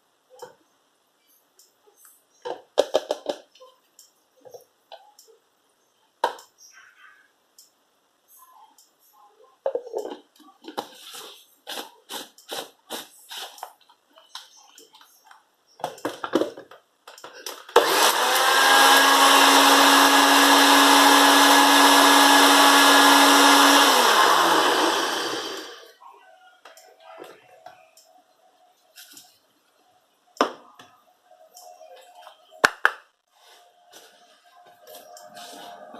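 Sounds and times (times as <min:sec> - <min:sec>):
blender motor milling peppercorns: 0:17.8 - 0:25.9.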